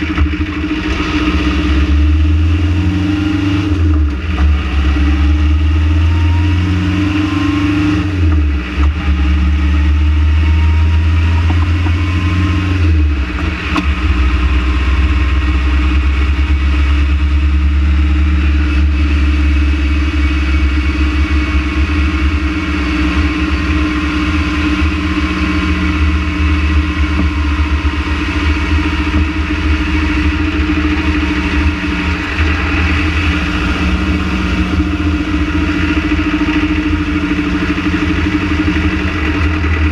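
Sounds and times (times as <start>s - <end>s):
van engine humming: 0.0s - 39.9s.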